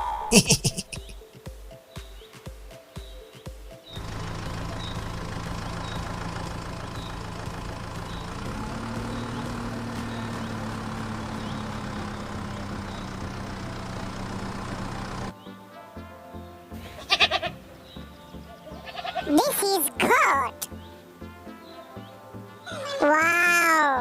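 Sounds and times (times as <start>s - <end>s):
tractor engine running: 4.0s - 15.3s.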